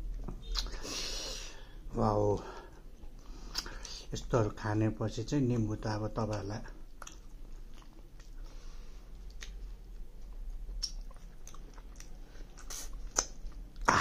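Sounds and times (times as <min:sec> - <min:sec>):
person chewing: 0:00.0 - 0:01.2, 0:03.0 - 0:04.1, 0:05.5 - 0:14.0
mouth clicks: 0:10.8 - 0:14.0
mouth smack: 0:12.6 - 0:14.0.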